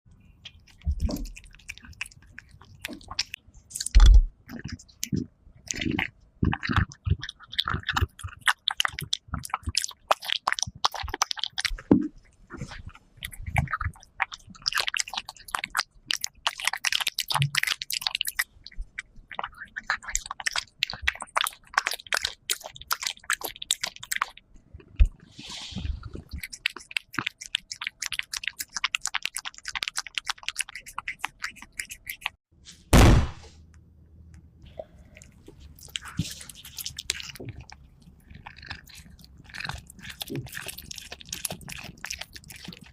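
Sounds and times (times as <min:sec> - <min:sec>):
cat chewing wetly: 0:00.1 - 0:32.4, 0:34.6 - 0:42.9
loud thump: 0:32.9 - 0:33.6.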